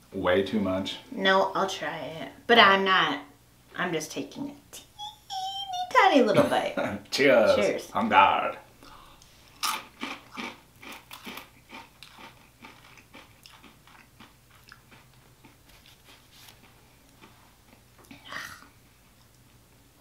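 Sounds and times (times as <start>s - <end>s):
chewing crunchy snack: 9.6s - 18.2s.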